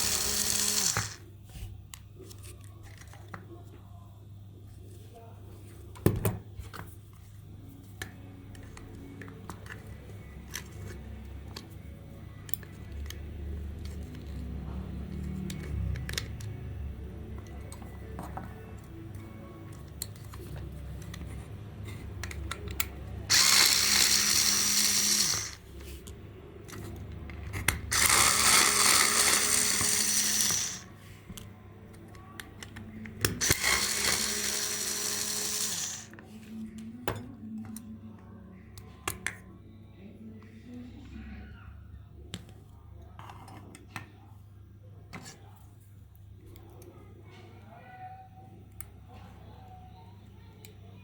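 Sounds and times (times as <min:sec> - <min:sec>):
small power tool running: 0:00.0 - 0:01.2, 0:23.3 - 0:25.6, 0:27.9 - 0:30.9, 0:33.4 - 0:36.1.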